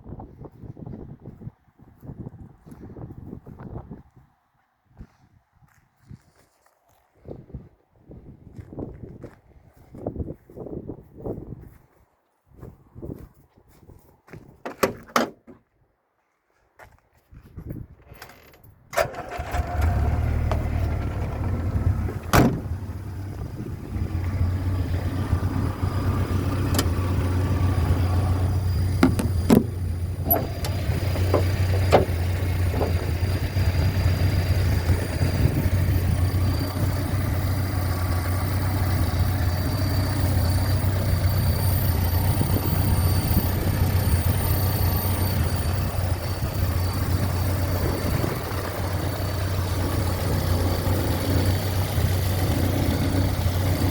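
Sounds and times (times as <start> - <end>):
engine idling: 19.0 - 53.9.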